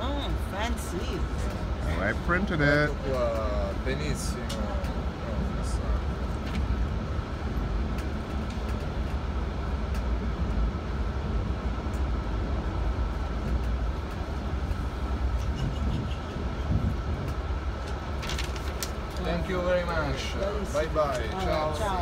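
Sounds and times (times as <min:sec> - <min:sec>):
train rumble: 0:00.0 - 0:22.0
light ticks: 0:09.8 - 0:10.1.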